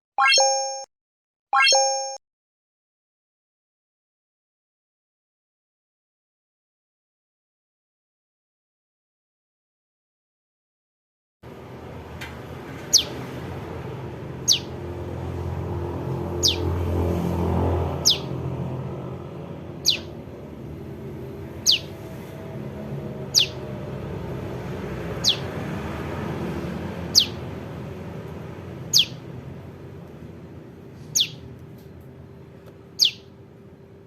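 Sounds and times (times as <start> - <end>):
young bird calling: 14.4 - 14.8, 16.4 - 16.6, 18.0 - 18.3, 19.8 - 20.2, 21.6 - 22.0, 23.3 - 23.6, 25.2 - 25.5, 27.1 - 27.4, 28.9 - 29.2, 31.1 - 31.5, 33.0 - 33.3.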